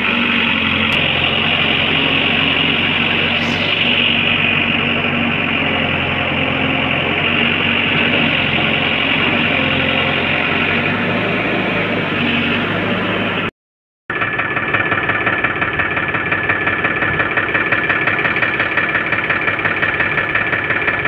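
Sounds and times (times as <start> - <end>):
heavy diesel engine running: 0.0 - 13.5, 14.1 - 21.0.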